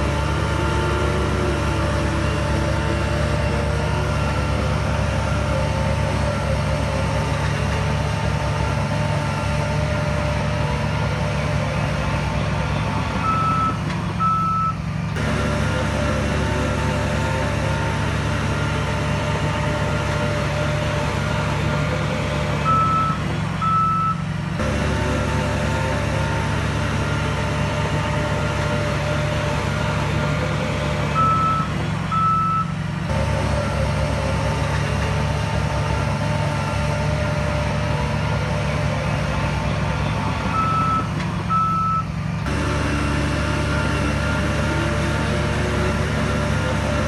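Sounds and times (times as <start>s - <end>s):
diesel earthmoving machine running: 0.0s - 47.0s
reversing alarm beeps: 13.2s - 14.8s, 22.7s - 24.2s, 31.2s - 32.7s, 40.5s - 42.1s.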